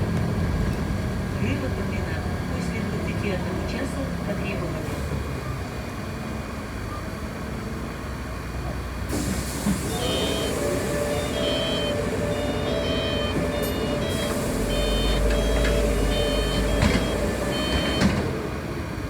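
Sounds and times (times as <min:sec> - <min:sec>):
bus engine rumble: 0:00.0 - 0:19.0
steady high tones: 0:09.9 - 0:18.2.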